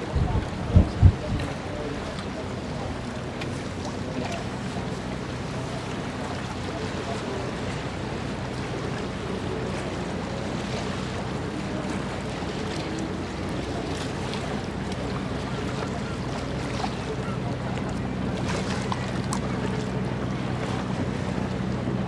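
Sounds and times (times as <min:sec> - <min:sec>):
wind buffeting microphone: 0:00.0 - 0:02.2
ship engine low hum: 0:00.0 - 0:22.0
water noise: 0:00.0 - 0:22.0.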